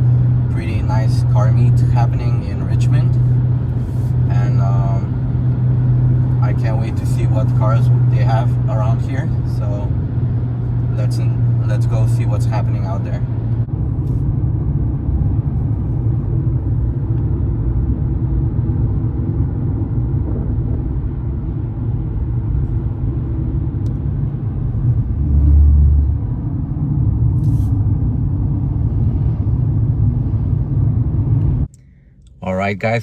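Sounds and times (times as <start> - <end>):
road and engine rumble in car: 0.0 - 33.0.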